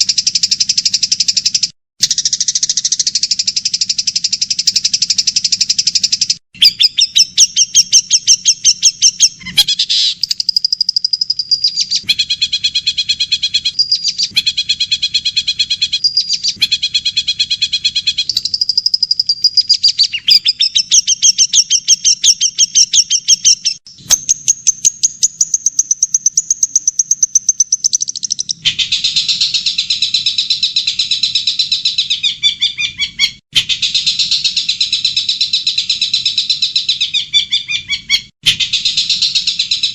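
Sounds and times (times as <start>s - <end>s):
songbird trills and chattering: 0.0s - 12.2s, 18.1s - 33.4s.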